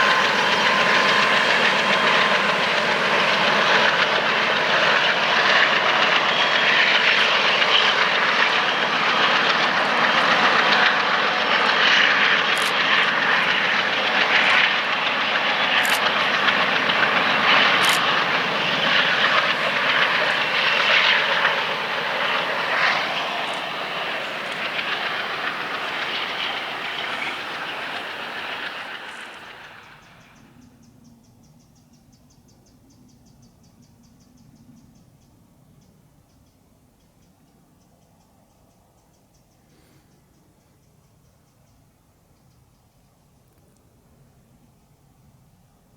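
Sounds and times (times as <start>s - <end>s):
high wheel squeaks: 0.0s - 30.2s
train wheels on rails: 0.0s - 30.5s.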